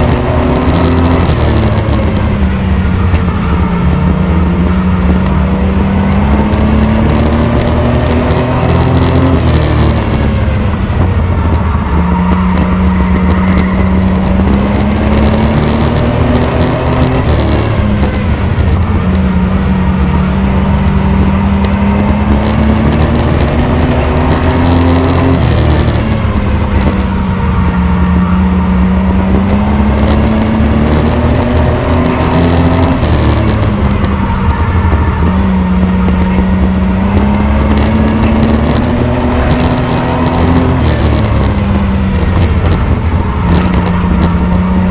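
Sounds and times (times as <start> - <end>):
race truck engine: 0.0 - 44.9
road noise rumble: 0.0 - 44.9.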